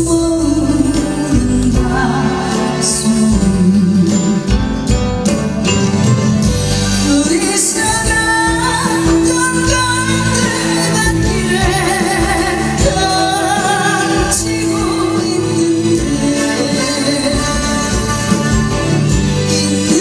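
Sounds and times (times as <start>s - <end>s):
woman singing: 0.0s - 5.0s, 6.9s - 20.0s
backing band playing: 0.0s - 20.0s.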